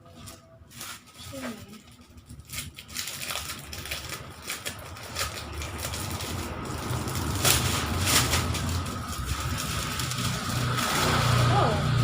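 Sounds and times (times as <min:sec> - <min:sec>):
plastic packaging crinkling: 0:00.0 - 0:11.5
low rumble: 0:03.0 - 0:12.0.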